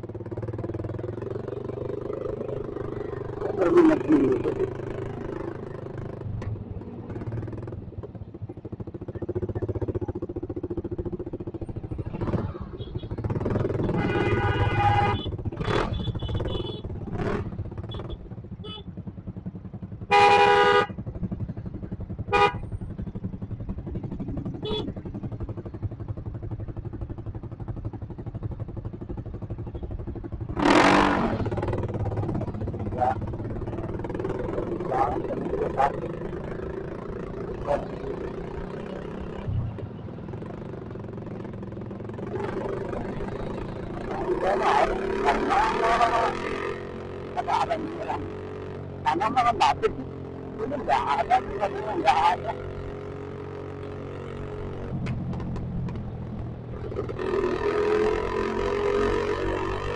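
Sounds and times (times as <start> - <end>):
motorcycle engine hum: 0.0 - 59.9
vehicle horn honking: 13.9 - 16.9, 20.1 - 20.9.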